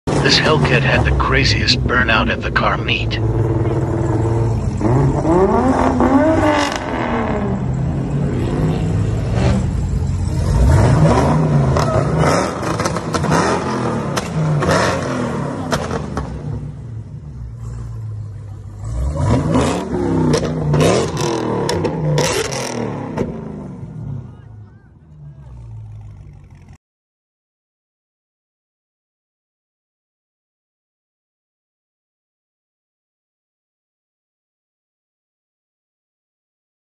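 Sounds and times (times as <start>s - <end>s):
car engine revving hard: 0.1s - 16.7s, 17.4s - 24.2s.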